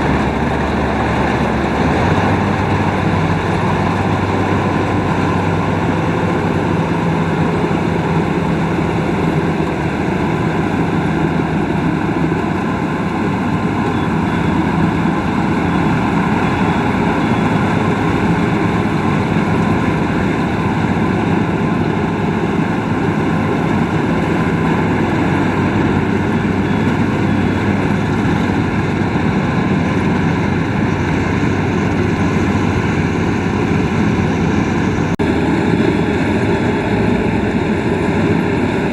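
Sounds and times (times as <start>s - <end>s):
combine harvester engine hum: 0.0s - 38.9s
mechanical rush: 0.0s - 38.9s.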